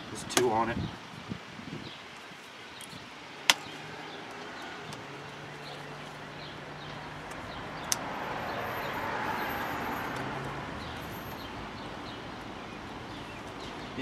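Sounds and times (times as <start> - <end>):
vehicle passing by: 3.2 - 12.2.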